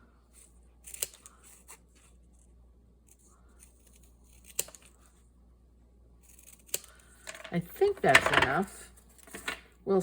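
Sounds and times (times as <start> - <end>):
scissors snipping tape: 0.8 - 1.3, 3.7 - 5.0.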